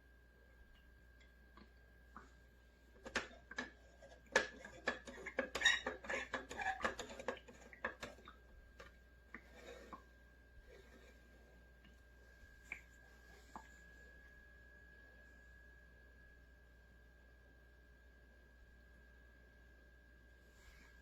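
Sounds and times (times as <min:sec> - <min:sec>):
faint steady high tone: 0:11.5 - 0:21.0.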